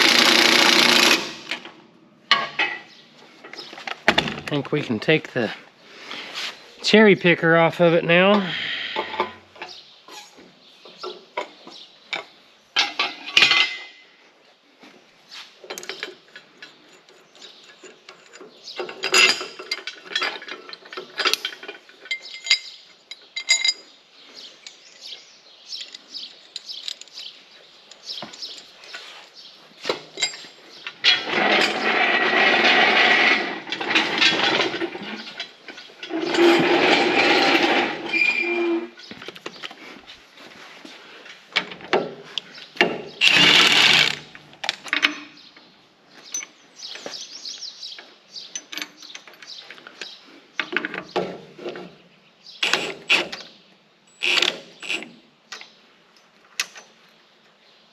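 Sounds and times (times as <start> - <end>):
rough mechanical noise: 0.0 - 1.8, 31.0 - 39.0, 42.8 - 44.4
metal clinks and clanks: 15.7 - 24.0, 30.1 - 39.1.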